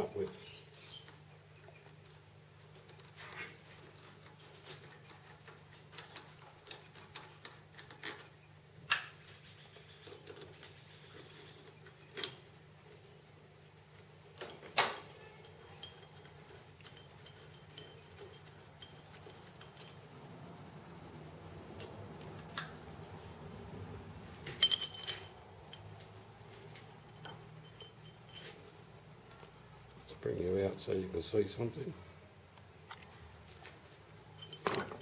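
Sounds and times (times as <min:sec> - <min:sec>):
metal bolt and washer clinking: 0:02.7 - 0:09.2, 0:14.4 - 0:20.1, 0:24.5 - 0:25.9, 0:27.0 - 0:28.6, 0:34.3 - 0:35.0.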